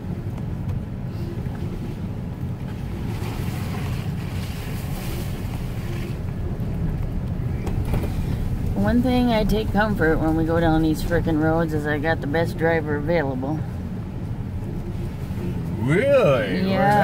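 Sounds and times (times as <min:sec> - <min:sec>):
truck engine and tyres rumbling: 0:00.0 - 0:17.0.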